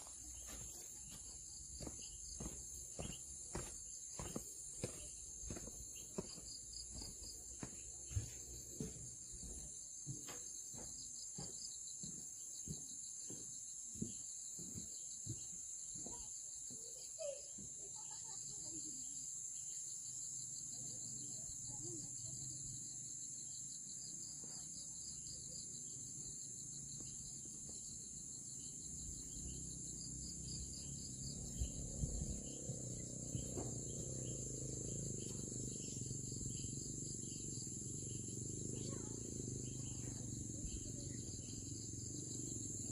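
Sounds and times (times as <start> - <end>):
crickets chirping: 0.0 - 42.9
high-pitched insect drone: 24.7 - 42.9.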